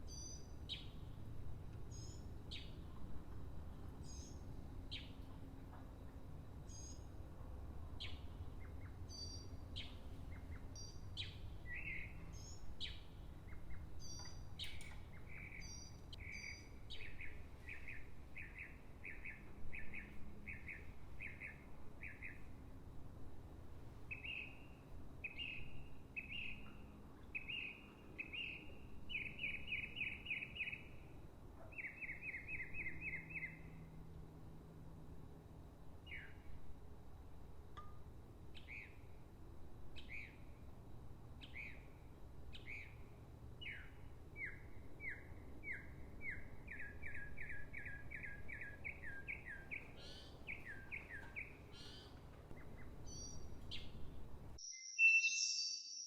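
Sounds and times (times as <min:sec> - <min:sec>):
songbirds singing: 0:00.0 - 0:22.8, 0:24.1 - 0:34.1, 0:36.0 - 0:36.6, 0:37.8 - 0:39.3, 0:39.9 - 0:56.0
low outdoor rumble: 0:00.0 - 0:28.0.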